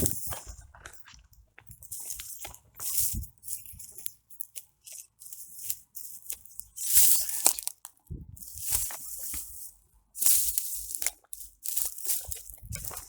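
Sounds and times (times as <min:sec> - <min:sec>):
footsteps crunching on rough ground: 0:00.0 - 0:04.0, 0:05.0 - 0:13.0.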